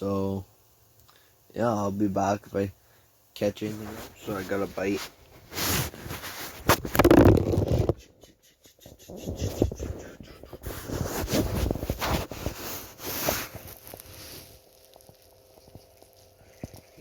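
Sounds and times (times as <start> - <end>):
knocks and scrapes: 3.6 - 8.1, 9.1 - 14.5.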